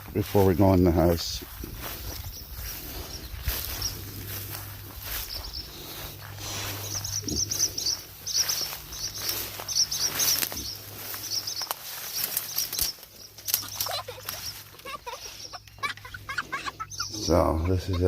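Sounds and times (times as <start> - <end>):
small birds chirping: 0.0 - 18.0
steady low hum: 0.6 - 18.0
lower bird calls: 0.8 - 18.0
scattered clicks: 11.6 - 14.9.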